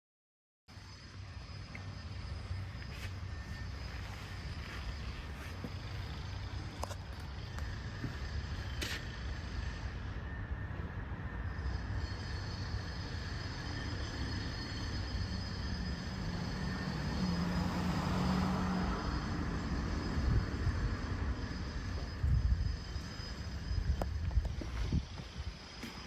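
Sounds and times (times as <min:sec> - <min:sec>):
passing vehicle engine rumble: 0:10.8 - 0:25.6.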